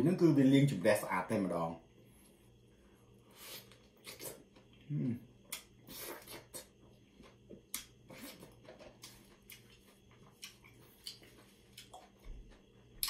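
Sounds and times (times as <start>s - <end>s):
low steady hum: 0.0s - 13.0s
chewing and mouth clicks: 3.7s - 4.8s, 5.5s - 13.0s.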